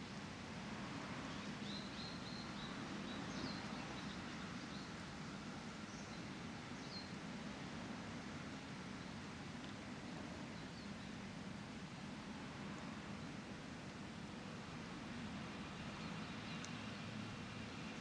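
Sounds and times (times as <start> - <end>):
outdoor background noise: 0.0 - 18.0
small birds chirping: 1.2 - 5.0, 5.8 - 7.2, 15.8 - 18.0.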